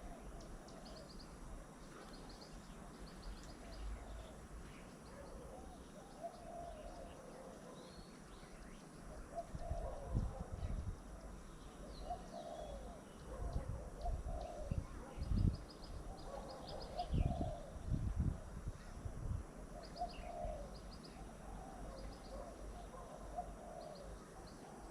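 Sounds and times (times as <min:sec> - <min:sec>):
small birds chirping: 0:00.0 - 0:19.0, 0:19.7 - 0:24.9
doves cooing: 0:05.1 - 0:07.9, 0:09.1 - 0:10.8, 0:11.8 - 0:15.0, 0:16.1 - 0:17.8, 0:19.6 - 0:24.9.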